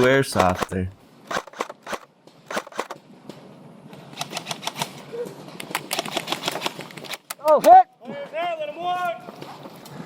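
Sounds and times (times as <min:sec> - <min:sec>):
airsoft guns firing: 0:00.3 - 0:03.0.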